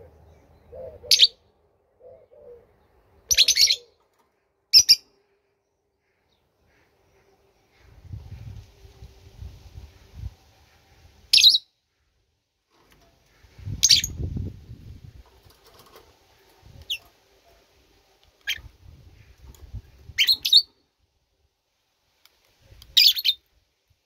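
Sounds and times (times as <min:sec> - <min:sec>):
bird chirping: 0:00.0 - 0:04.1, 0:04.7 - 0:07.9, 0:10.0 - 0:12.2, 0:13.0 - 0:14.5, 0:18.2 - 0:20.9, 0:22.7 - 0:23.4.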